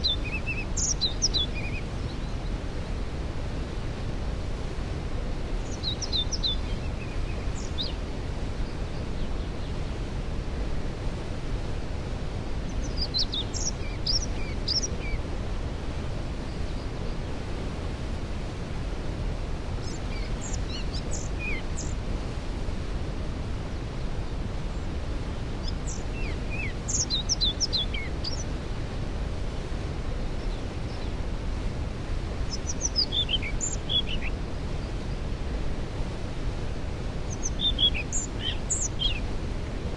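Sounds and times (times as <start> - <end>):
songbird singing: 0.0 - 3.7, 5.1 - 10.2, 12.6 - 15.3, 19.6 - 22.1, 24.7 - 28.7, 29.6 - 39.6.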